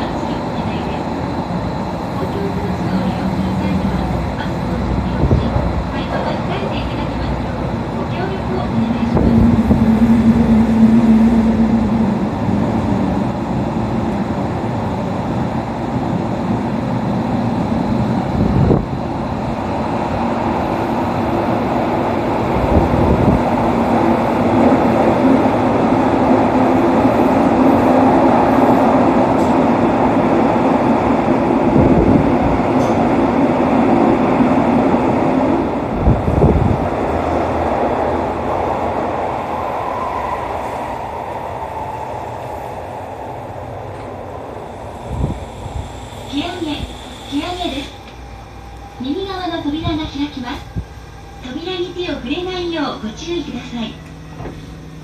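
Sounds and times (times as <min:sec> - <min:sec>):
train motor hum: 0:00.0 - 0:16.0
train wheel-on-rail rumble: 0:00.0 - 0:55.0.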